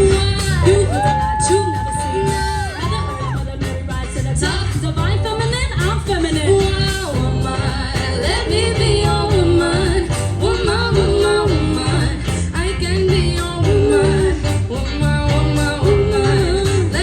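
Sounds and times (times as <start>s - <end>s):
live band playing: 0.0s - 17.0s
repeating bass line: 0.0s - 17.0s.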